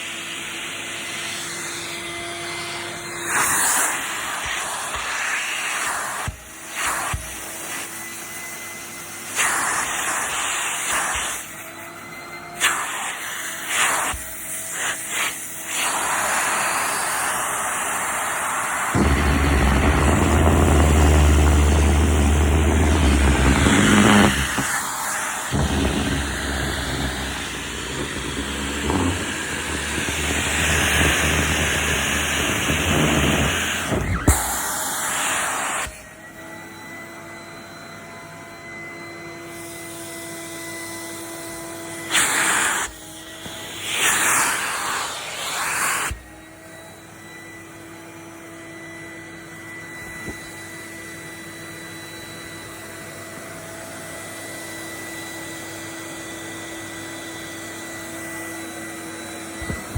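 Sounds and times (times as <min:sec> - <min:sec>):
vacuum cleaner running: 0:00.0 - 0:59.9
deep hum: 0:19.0 - 0:24.7, 0:25.6 - 0:33.0.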